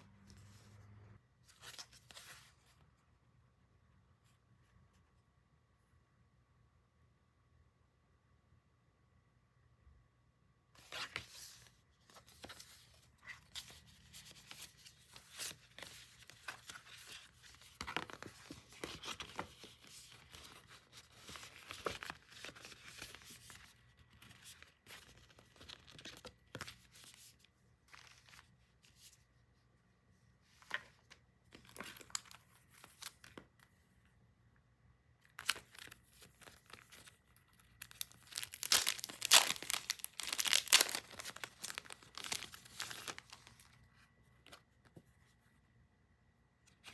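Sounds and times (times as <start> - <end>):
packaging crinkling and tearing: 35.4 - 43.7.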